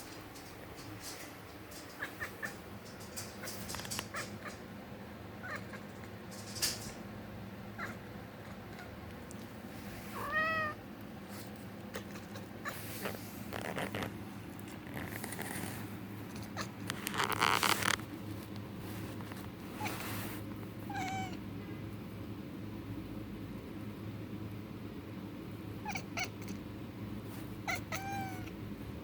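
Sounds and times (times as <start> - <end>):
kitten chirping and chattering: 1.6 - 4.7, 11.8 - 14.1
kitten meowing: 10.2 - 10.8, 27.7 - 28.5.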